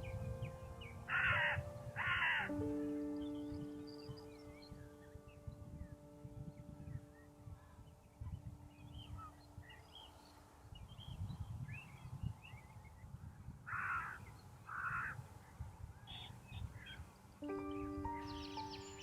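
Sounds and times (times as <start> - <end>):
small birds chirping: 0.0 - 19.0
crow cawing: 1.1 - 2.5, 13.7 - 15.2.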